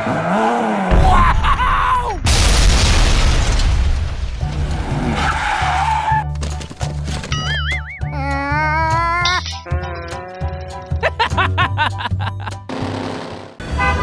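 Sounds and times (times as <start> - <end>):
loud noisy burst: 0.9 - 5.5
background music bass line: 4.1 - 12.8.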